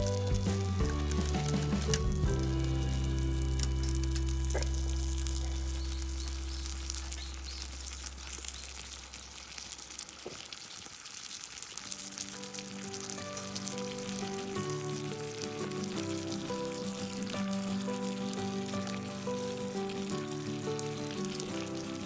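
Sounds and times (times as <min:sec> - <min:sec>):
melody of short notes: 0:00.0 - 0:08.0
held low chord: 0:00.0 - 0:08.2
campfire crackling: 0:00.0 - 0:22.0.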